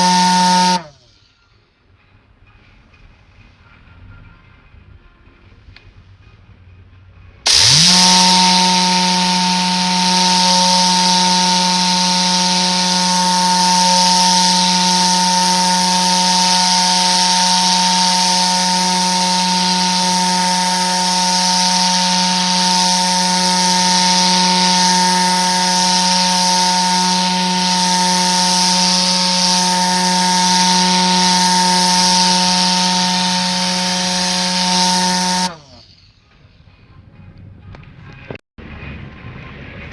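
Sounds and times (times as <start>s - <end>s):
compressed air gun hissing: 0.0s - 0.9s, 7.5s - 35.6s
whipping tube buzzing hum: 0.0s - 0.9s, 7.5s - 35.8s.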